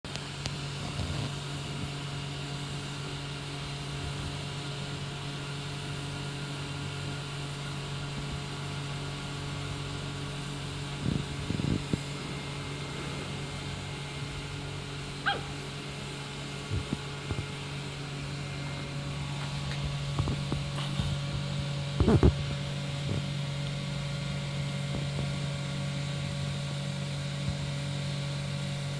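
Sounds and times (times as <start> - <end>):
low hum: 0.1 - 28.9
dog barking and yelping: 15.2 - 15.7.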